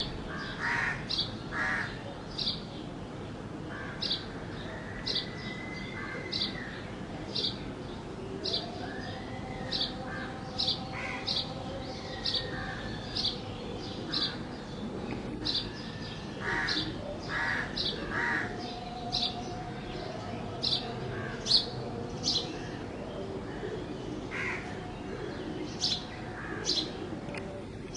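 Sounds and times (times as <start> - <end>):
sparrow chirping: 23.2 - 27.9.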